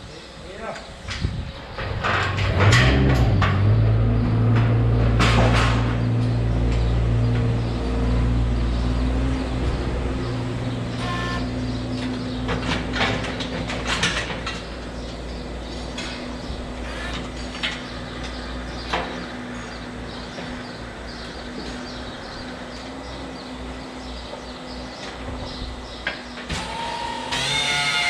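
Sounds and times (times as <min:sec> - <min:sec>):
low machine drone: 0:01.0 - 0:28.0.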